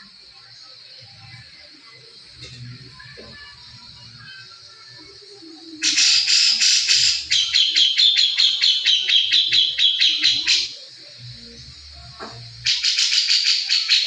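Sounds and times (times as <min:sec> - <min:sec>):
songbird rapid chatter: 0:05.8 - 0:10.9, 0:12.6 - 0:14.0.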